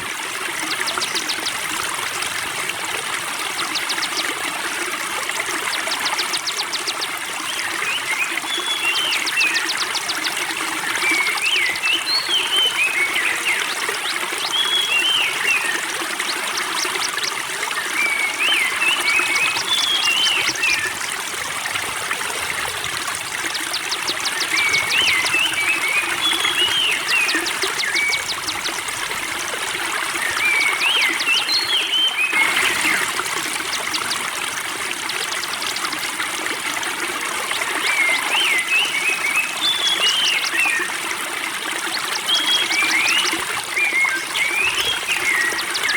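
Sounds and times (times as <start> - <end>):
spring water trickling: 0.0 - 45.9
songbird singing: 5.7 - 21.0, 23.3 - 34.3, 37.8 - 40.9.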